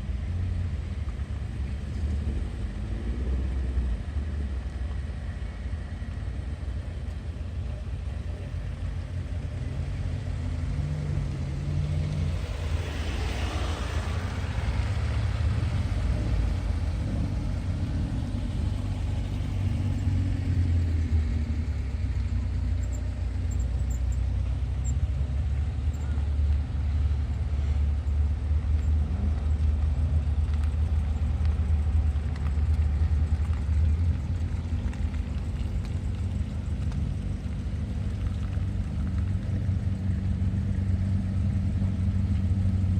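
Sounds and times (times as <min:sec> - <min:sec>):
car engines rumbling: 0:00.0 - 0:42.9.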